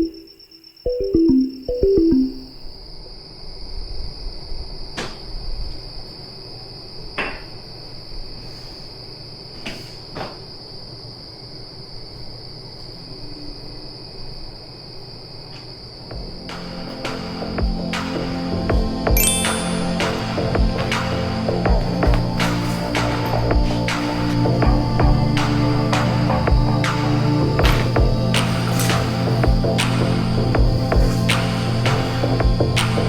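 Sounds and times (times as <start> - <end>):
high-pitched insect trill: 0.0 - 4.6.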